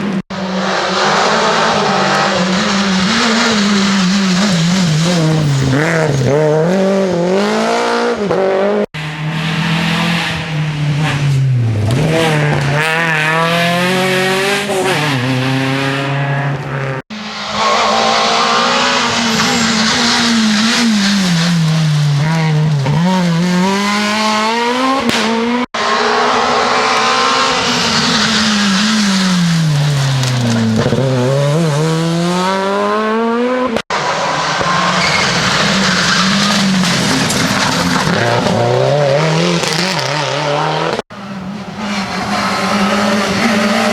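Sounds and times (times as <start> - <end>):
rally car engines revving: 0.0 - 43.9
tyres squealing: 34.1 - 38.2.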